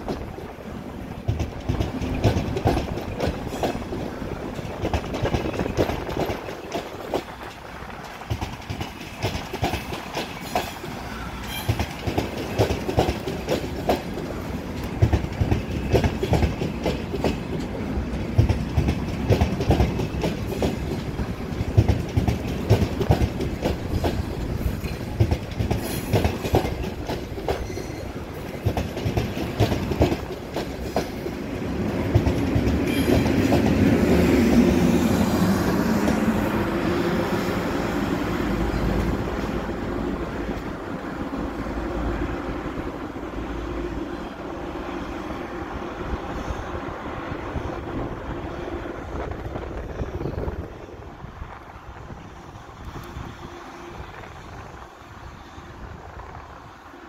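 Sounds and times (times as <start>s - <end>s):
train wheels clattering over joints: 0.0s - 36.4s.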